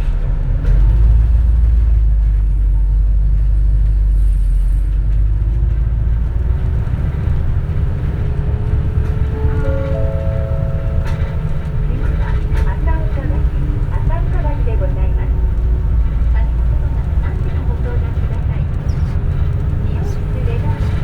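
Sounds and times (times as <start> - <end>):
bus engine and road rumble: 0.0 - 21.0
short electronic chime: 9.4 - 12.1.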